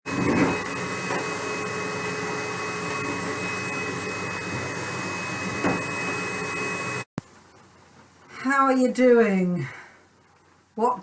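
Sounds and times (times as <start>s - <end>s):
vacuum cleaner running: 0.0s - 7.1s.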